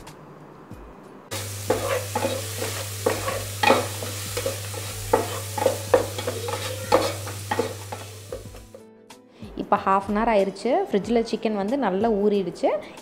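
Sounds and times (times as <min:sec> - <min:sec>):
masala sizzling in oil: 0:01.3 - 0:08.8
spatula scraping and knocking pot: 0:01.3 - 0:08.8.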